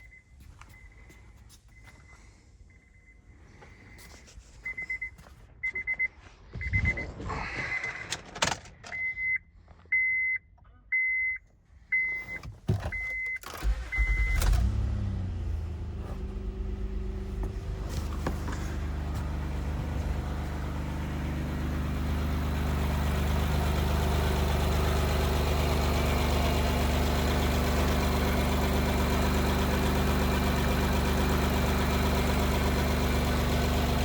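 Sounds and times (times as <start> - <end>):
dashboard warning chimes beeping: 4.6 - 6.0, 8.9 - 22.3
car starter cranking: 12.4 - 34.0
car engine idling: 13.0 - 34.0.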